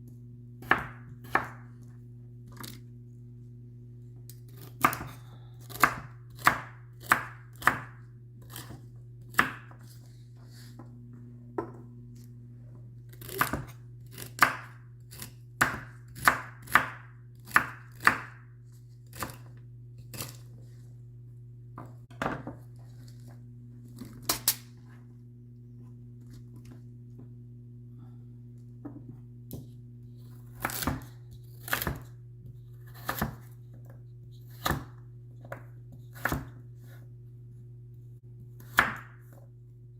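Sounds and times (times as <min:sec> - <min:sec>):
low hum: 0:00.0 - 0:05.6, 0:08.0 - 0:14.2, 0:18.4 - 0:32.9
knife chopping on cutting board: 0:00.6 - 0:01.7, 0:04.5 - 0:10.0, 0:13.2 - 0:19.5, 0:30.5 - 0:32.2, 0:32.9 - 0:33.6, 0:34.5 - 0:36.6, 0:38.6 - 0:39.4.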